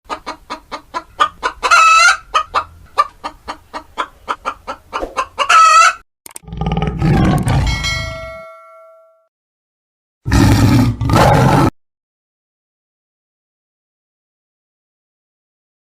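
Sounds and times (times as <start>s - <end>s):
chicken clucking: 0.1s - 6.0s
chicken squawking: 0.1s - 6.0s
deep ringing tone: 7.4s - 9.3s.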